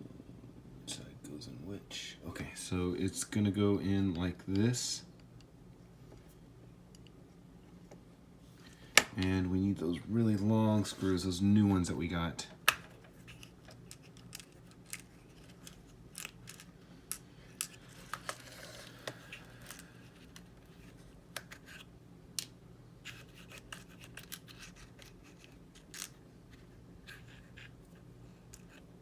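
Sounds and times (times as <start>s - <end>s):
faint steady hum: 0.0s - 29.0s
small plastic parts clicking: 12.7s - 18.3s.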